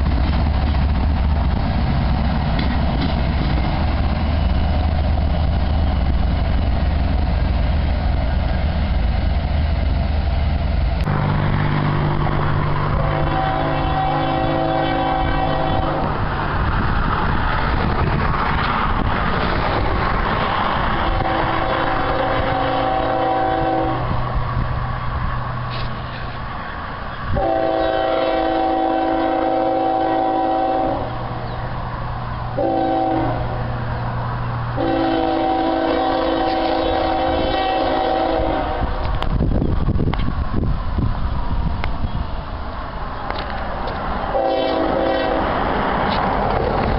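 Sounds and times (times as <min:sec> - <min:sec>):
diesel locomotive engines droning: 0:00.0 - 0:46.9
train air horn blasts: 0:12.8 - 0:16.2, 0:21.0 - 0:24.2, 0:27.3 - 0:31.2, 0:32.6 - 0:33.6, 0:34.8 - 0:39.1, 0:44.3 - 0:45.6.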